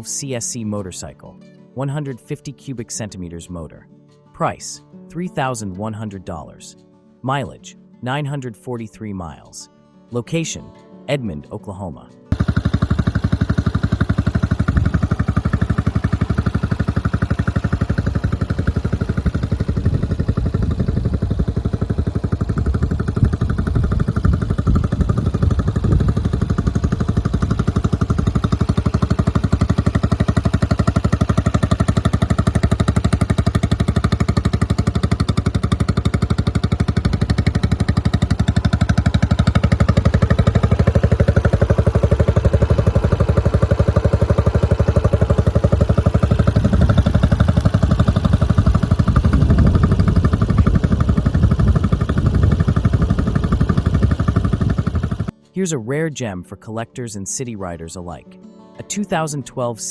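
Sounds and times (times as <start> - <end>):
motorcycle engine running: 12.3 - 55.4.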